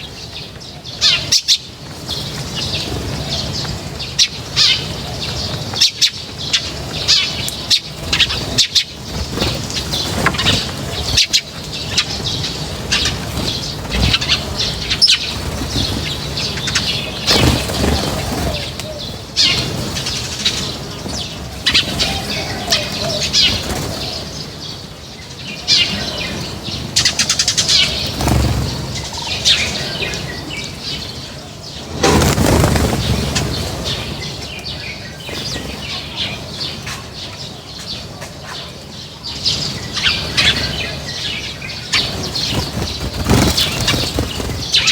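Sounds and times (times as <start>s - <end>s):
small birds chirping: 0.0s - 44.9s
wings flapping: 1.1s - 24.6s, 25.9s - 31.1s, 31.8s - 34.6s, 41.8s - 44.9s.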